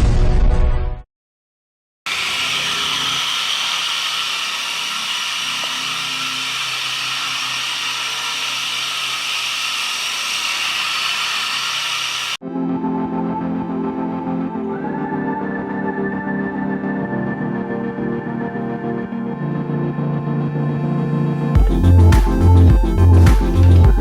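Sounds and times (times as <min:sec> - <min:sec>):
small electric motor whining: 0:02.1 - 0:12.4.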